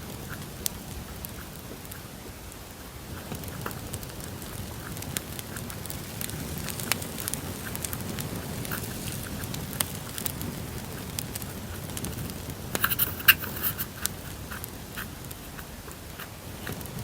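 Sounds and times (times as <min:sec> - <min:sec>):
campfire crackling: 0:00.0 - 0:17.0
rustles: 0:00.0 - 0:17.0.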